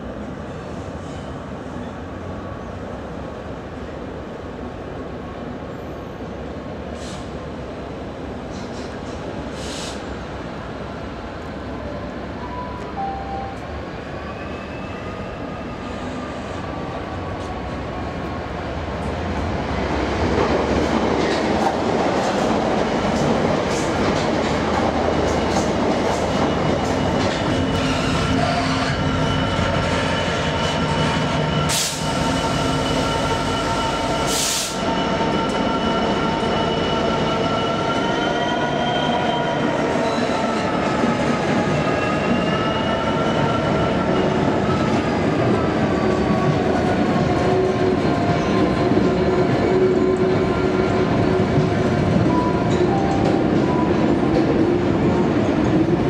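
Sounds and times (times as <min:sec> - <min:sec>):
diesel locomotive engine: 0:15.0 - 0:38.2.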